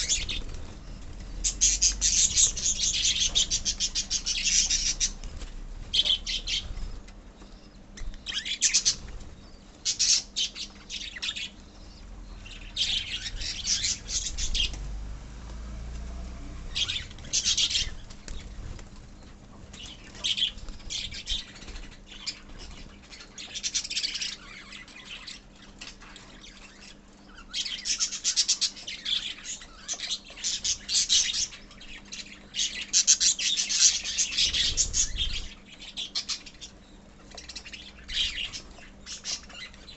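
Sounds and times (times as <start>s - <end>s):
lovebirds chattering: 0.0s - 15.0s, 16.6s - 39.9s.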